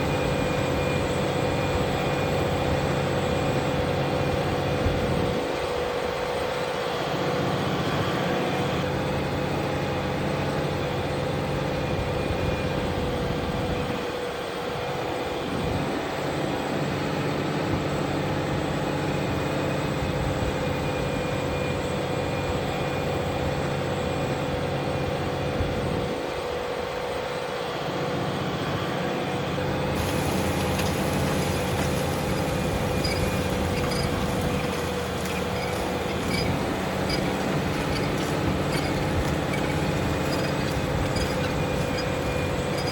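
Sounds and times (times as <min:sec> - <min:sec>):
tractor diesel engine running: 0:00.0 - 0:06.4, 0:29.5 - 0:42.9
tractor engine drone with whine: 0:00.0 - 0:42.9
constant whine: 0:29.8 - 0:42.9.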